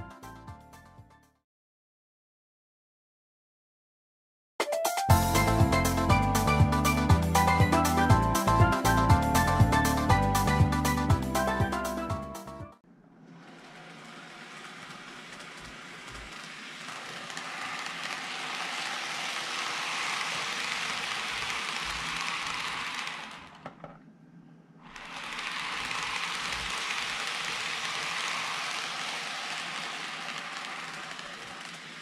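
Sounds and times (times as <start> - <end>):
model train whirring hiss: 13.4 - 23.5, 24.9 - 32.0.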